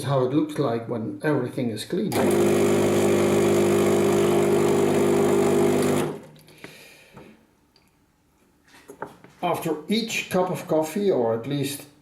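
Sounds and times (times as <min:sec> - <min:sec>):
espresso machine pump buzzing: 0:02.2 - 0:06.3.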